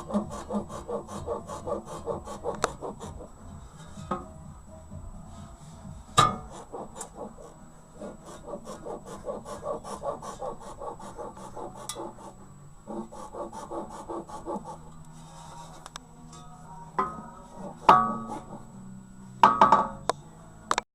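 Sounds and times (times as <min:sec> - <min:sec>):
rubber bushings squeaking: 0:00.0 - 0:04.2, 0:06.1 - 0:15.8.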